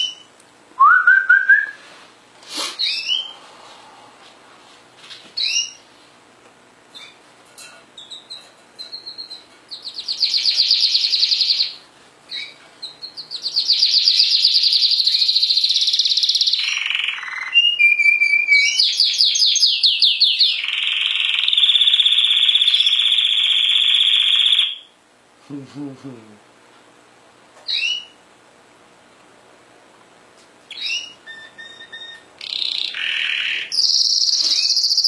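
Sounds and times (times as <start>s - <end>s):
canary singing fast trills: 0.0s - 0.3s, 2.8s - 3.4s, 5.4s - 5.9s, 8.0s - 25.0s, 27.7s - 28.2s, 30.7s - 35.0s.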